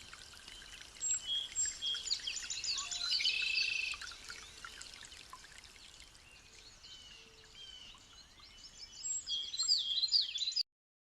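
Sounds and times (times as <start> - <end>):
birds chirping and whistling: 0.6 - 4.7, 6.4 - 10.6.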